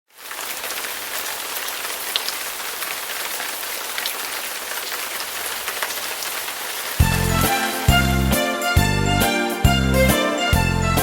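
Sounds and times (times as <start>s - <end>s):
raindrop ticks: 0.1s - 7.4s
rain falling: 0.1s - 8.9s.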